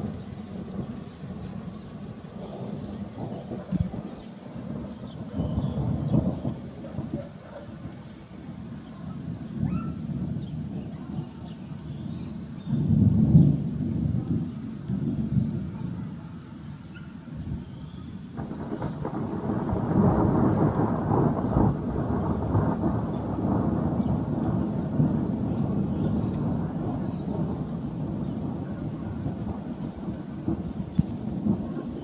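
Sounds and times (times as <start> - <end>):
insect chirping: 0.0 - 5.7, 8.2 - 13.2
distant thunder rumbling: 0.0 - 32.0.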